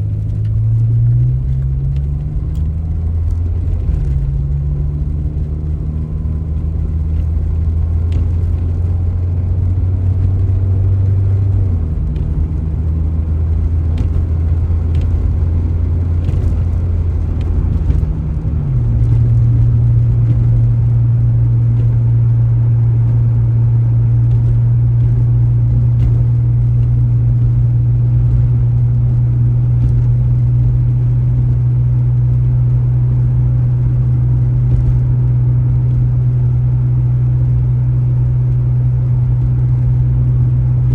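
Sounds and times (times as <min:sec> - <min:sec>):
car engine and road noise: 0:00.0 - 0:40.9.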